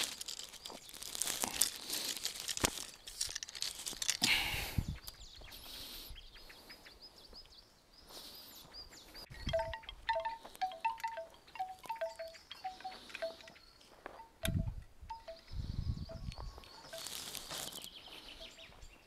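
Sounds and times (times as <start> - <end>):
small metal bells clinking: 0.0 - 4.2, 9.3 - 18.8.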